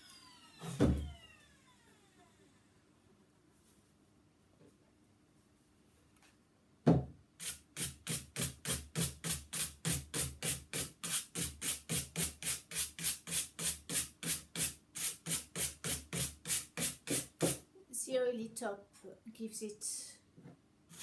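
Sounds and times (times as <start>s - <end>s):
knock: 6.8s - 7.2s.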